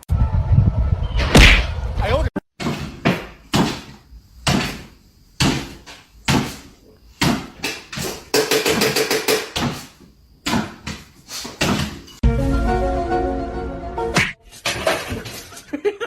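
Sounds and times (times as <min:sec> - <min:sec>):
sharp knocks or thumps: 0:02.6 - 0:12.1.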